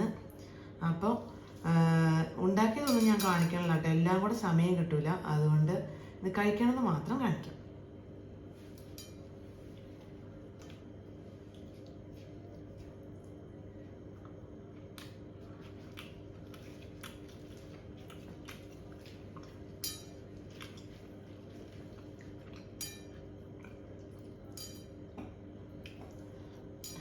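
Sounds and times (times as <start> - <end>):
steady low hum: 0.0 - 27.0
dishes clinking: 2.8 - 3.6, 24.5 - 25.0, 26.8 - 27.0.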